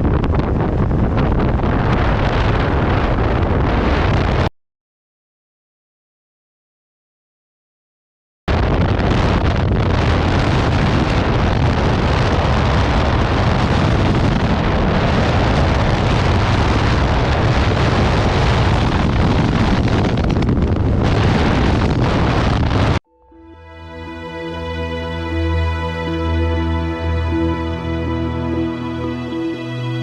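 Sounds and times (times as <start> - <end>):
wind rushing over microphone: 0.0 - 4.5, 8.5 - 23.0.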